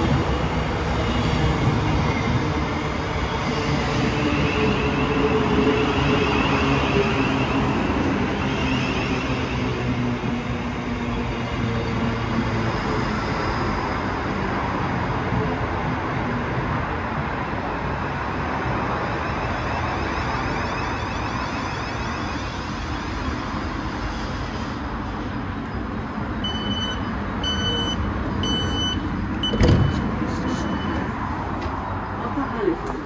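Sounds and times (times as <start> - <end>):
train rumbling to a stop: 0.0 - 33.0
high door-warning beeps: 26.4 - 31.2.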